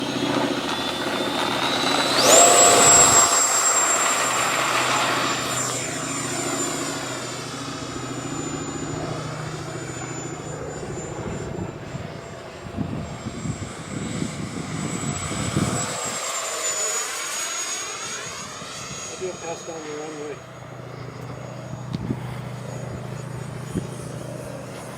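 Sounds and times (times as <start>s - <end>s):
electric jet fans whining: 0.0s - 24.9s
wind rumbling on microphone: 10.5s - 16.1s, 21.1s - 24.9s.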